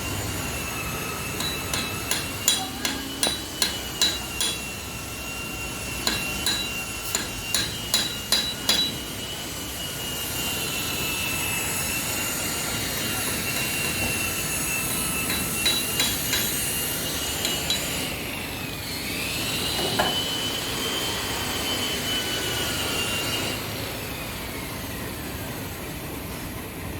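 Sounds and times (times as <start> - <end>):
hammer striking steel: 1.2 - 5.0, 6.0 - 9.2, 13.2 - 18.2.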